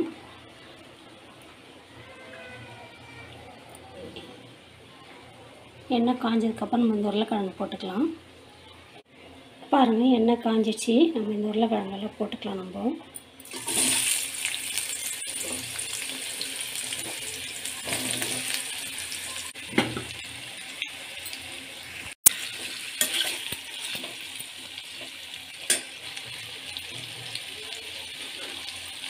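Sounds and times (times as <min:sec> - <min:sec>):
potato sizzling in hot oil: 0:13.4 - 0:29.0.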